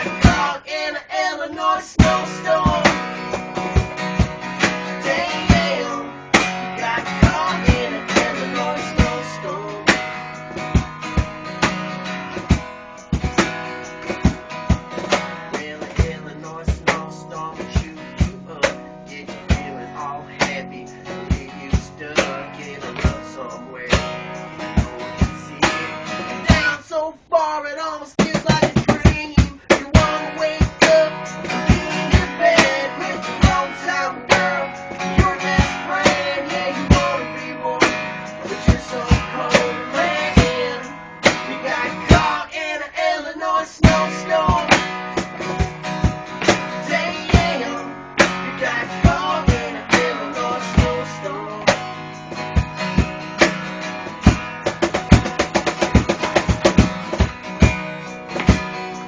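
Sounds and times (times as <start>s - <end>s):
picked acoustic guitar melody: 0.0s - 26.8s, 28.2s - 59.0s
strummed guitar chords: 0.0s - 26.8s, 28.2s - 59.0s
cajon hits: 2.0s - 6.6s, 28.2s - 33.6s, 43.8s - 47.6s, 51.6s - 58.8s.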